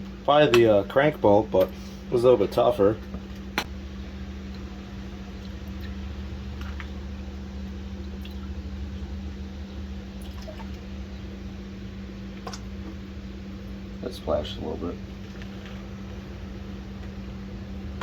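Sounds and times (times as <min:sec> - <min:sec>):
steady low hum: 0:00.0 - 0:18.0
oil trickling and dripping: 0:04.4 - 0:09.4, 0:10.0 - 0:11.3.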